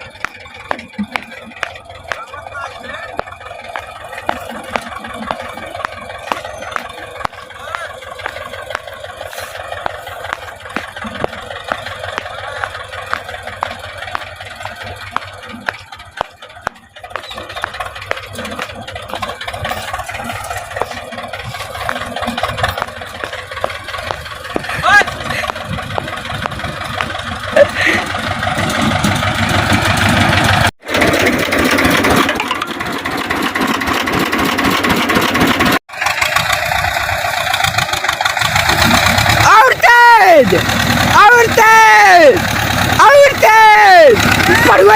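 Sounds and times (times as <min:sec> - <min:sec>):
sharp engine knocks: 0:00.0 - 0:27.6
tractor diesel engine running: 0:00.0 - 0:44.9.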